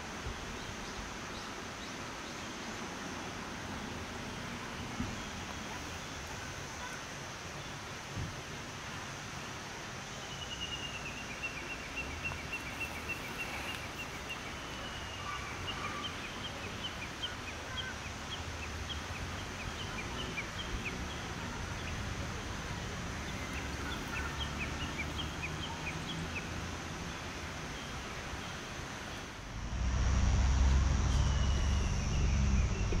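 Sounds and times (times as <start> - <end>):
small birds calling: 10.2 - 29.4
low outdoor rumble: 19.0 - 33.0.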